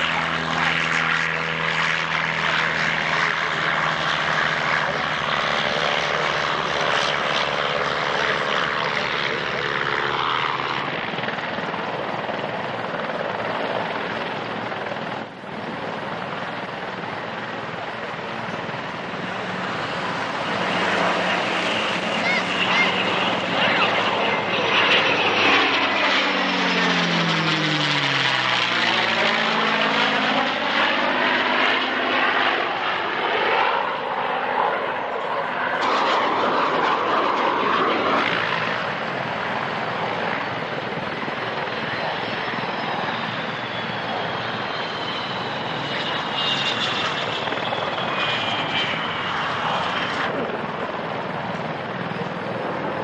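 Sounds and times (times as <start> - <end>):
aircraft engine flying past: 0.0 - 53.0
thin engine whine: 15.1 - 39.0.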